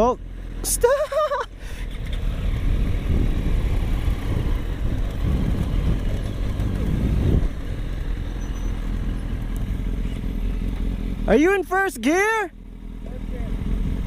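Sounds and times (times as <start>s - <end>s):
motorcycle engine running: 0.0s - 14.0s
wind rumble on microphone: 2.2s - 7.8s.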